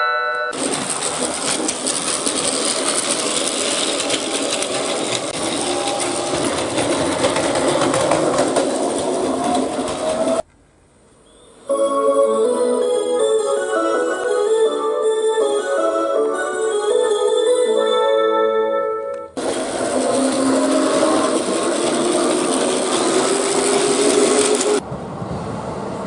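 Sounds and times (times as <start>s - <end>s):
wheels clattering over track joints: 0.5s - 10.5s, 19.4s - 24.8s
toy train motor whirring: 0.6s - 10.4s, 19.4s - 24.8s.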